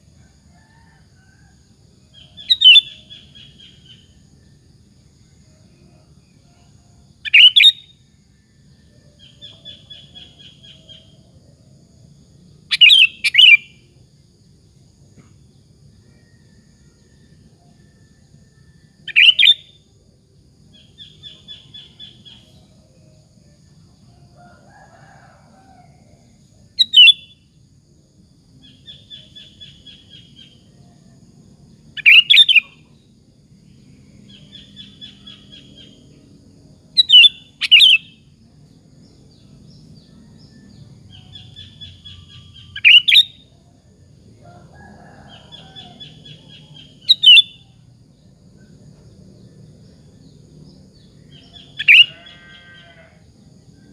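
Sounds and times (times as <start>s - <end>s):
bird whistled calls: 2.4s - 3.0s, 12.8s - 13.7s, 26.8s - 27.2s, 47.1s - 47.6s.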